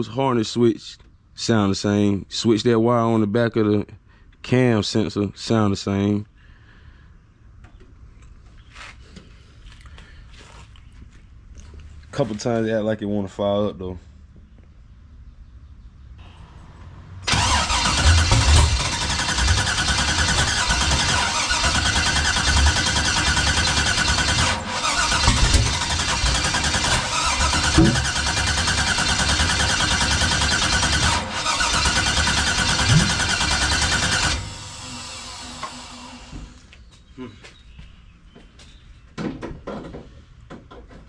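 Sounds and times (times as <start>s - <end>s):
starter cranking engine: 17.3s - 36.6s.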